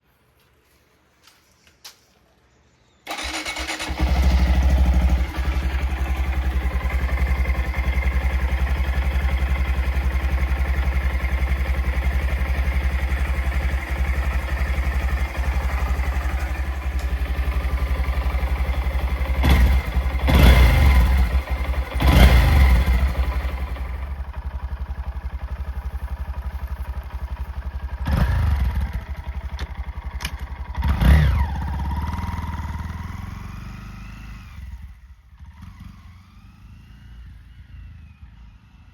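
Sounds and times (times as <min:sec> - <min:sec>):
motorcycle engine idling: 0:03.1 - 0:35.6
engine revving blips: 0:18.2 - 0:24.0, 0:30.8 - 0:38.9.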